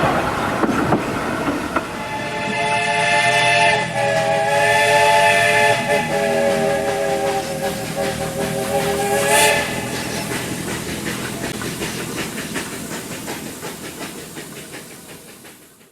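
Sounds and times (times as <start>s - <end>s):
locomotive exhaust beats: 0.0s - 15.9s
steam hiss: 0.0s - 15.9s
steam locomotive whistle: 1.8s - 11.0s.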